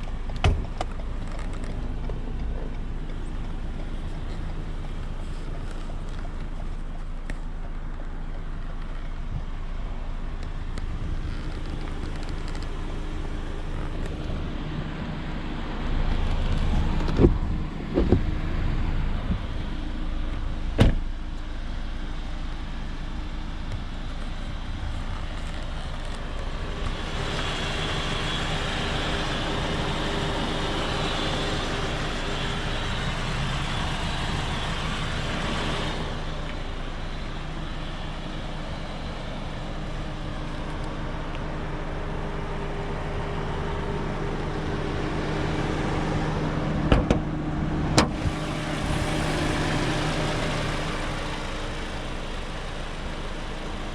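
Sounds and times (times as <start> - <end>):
car engine and tyre noise: 0.0 - 53.9
road hiss: 18.5 - 53.9.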